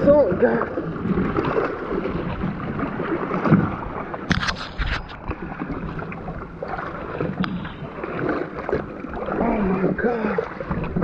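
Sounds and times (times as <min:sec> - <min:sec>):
water sloshing around a canoe: 0:00.0 - 0:11.0.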